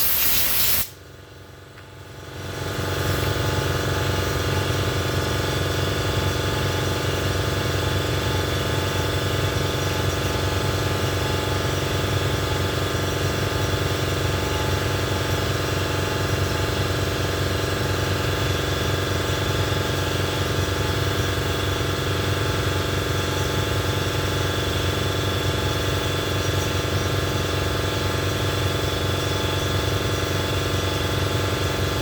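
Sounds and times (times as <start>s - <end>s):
air compressor motor running: 0.0s - 32.0s.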